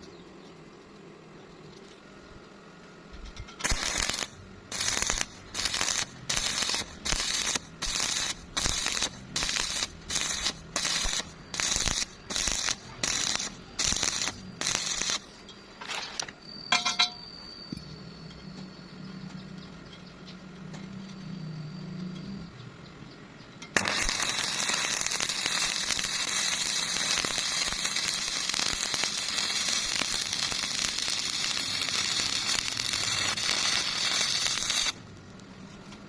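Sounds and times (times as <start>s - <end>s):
steady low hum: 0.0s - 15.8s
welding arc hissing crackle: 3.4s - 16.3s, 23.8s - 35.0s.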